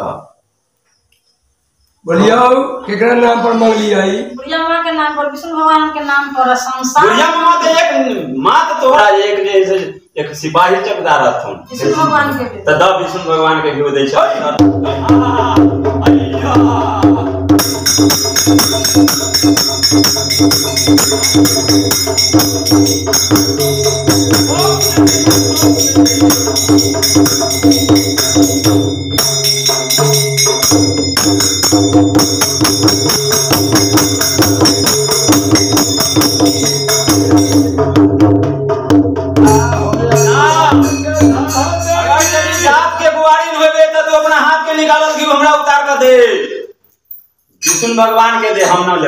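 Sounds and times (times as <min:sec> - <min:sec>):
drum beat: 0:14.4 - 0:43.6
hand cymbals clashing: 0:17.5 - 0:38.3, 0:39.2 - 0:43.2, 0:47.0 - 0:48.6.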